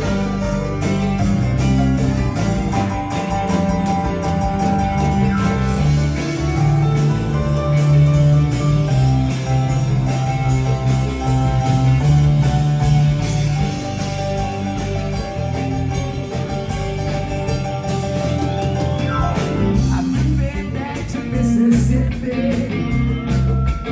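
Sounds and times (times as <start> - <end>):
rock band instrumental: 0.0 - 23.9.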